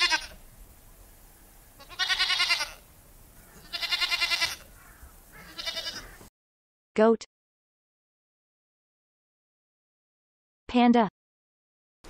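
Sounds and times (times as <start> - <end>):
goat bleating: 0.0 - 0.4, 1.8 - 6.3.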